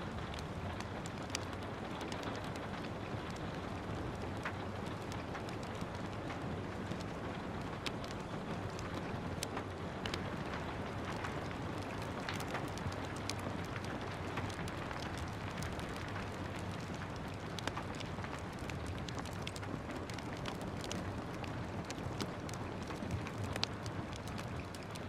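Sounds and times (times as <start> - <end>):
steady rain: 0.0 - 25.0
wood fire crackling: 0.0 - 25.0.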